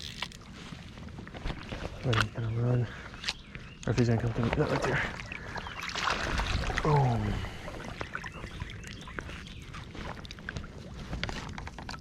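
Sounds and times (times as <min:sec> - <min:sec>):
light water splashing: 0:03.9 - 0:12.0.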